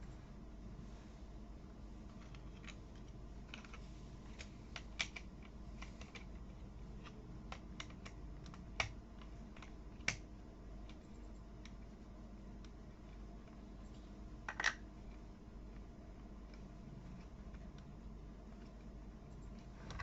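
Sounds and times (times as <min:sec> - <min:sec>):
plastic toy blocks clicking: 0:14.5 - 0:14.8.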